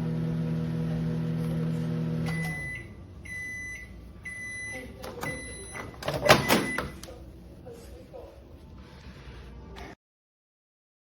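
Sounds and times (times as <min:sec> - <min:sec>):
microwave oven humming: 0:00.0 - 0:07.5
microwave short high beeps: 0:02.2 - 0:07.0.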